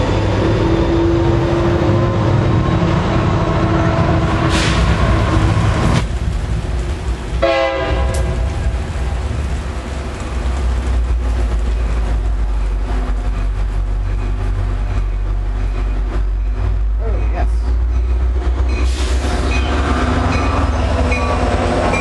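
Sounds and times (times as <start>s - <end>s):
diesel locomotive passing: 0.0s - 22.0s
train horn blast: 7.4s - 8.6s.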